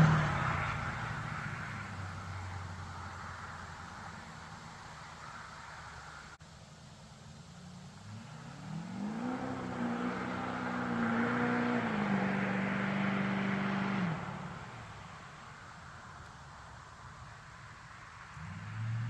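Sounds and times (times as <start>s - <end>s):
diesel truck accelerating hard: 0.0s - 6.4s, 8.0s - 15.3s, 18.3s - 19.0s.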